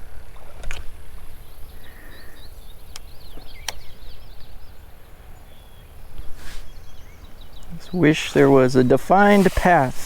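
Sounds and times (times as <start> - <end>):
small birds chirping: 1.2 - 10.0.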